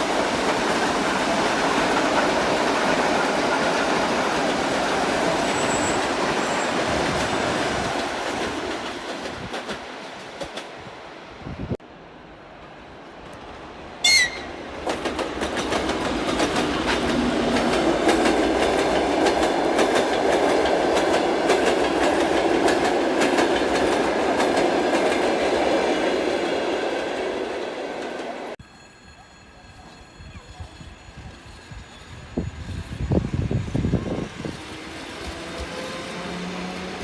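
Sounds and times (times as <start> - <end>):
train whistle blast: 14.0 - 14.6
train wheels clacking over rail joints: 14.8 - 25.5.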